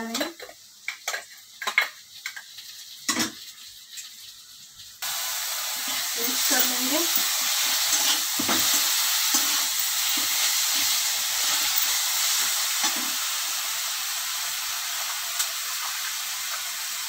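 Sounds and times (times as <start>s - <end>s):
onions sizzling in hot oil: 0.0s - 17.0s
metal spatula scraping and stirring: 5.8s - 13.0s.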